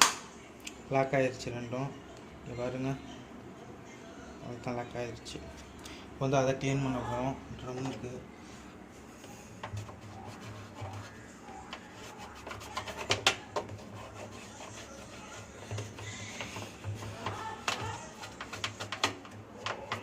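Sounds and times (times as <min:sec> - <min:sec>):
scrubbing inside washing machine drum: 0:09.6 - 0:20.0.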